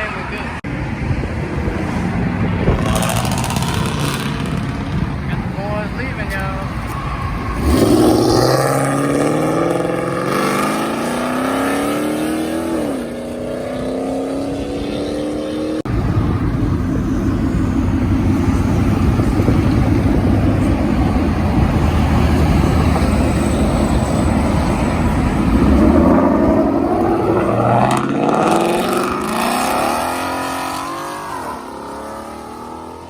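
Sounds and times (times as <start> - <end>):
car exhaust rumbling: 1.0 - 15.0, 15.8 - 33.0
car engine revving: 1.5 - 33.0.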